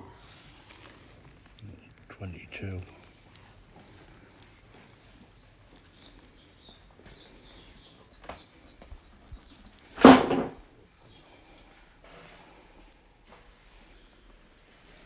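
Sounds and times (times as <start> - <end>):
small bird chirping: 1.6 - 11.7.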